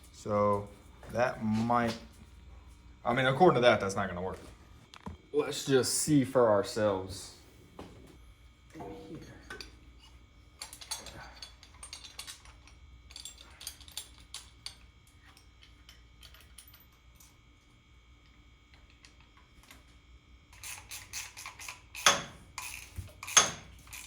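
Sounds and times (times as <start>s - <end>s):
metallic clicks of engine parts: 9.5s - 17.4s.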